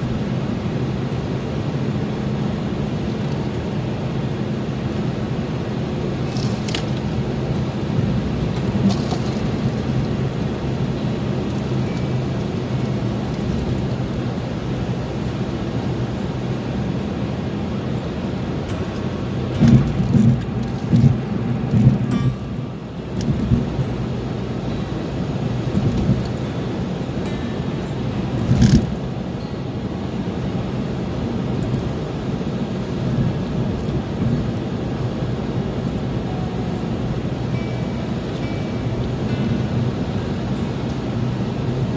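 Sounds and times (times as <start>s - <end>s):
car road and engine noise: 0.0s - 41.9s.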